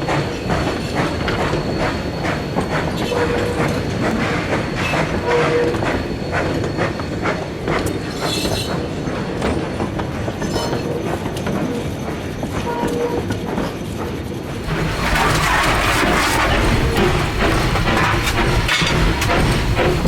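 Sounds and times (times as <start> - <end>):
steam locomotive rumble and clatter: 0.0 - 20.0
metal knocks and clanks: 14.6 - 20.0.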